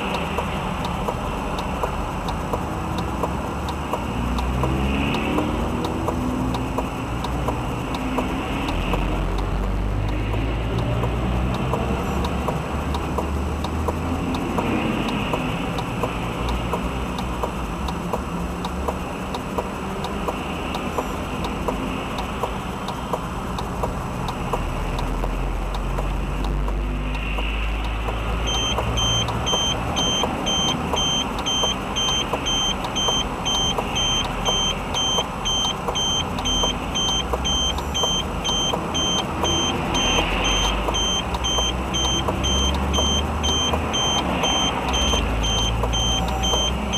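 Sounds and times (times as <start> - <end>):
car engine and road rumble: 0.0 - 46.9
high electronic beeps: 27.9 - 46.9.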